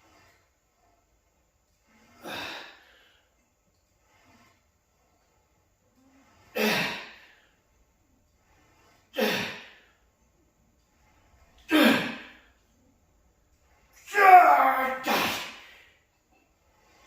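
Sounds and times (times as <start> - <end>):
forceful breaths out: 2.0 - 3.3.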